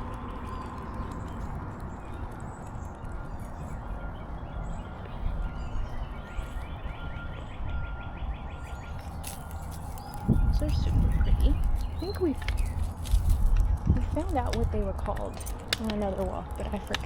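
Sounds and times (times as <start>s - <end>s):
birds chirping faintly: 0.0s - 17.0s
low rumble: 0.0s - 17.0s
footsteps on a trail: 8.7s - 17.0s.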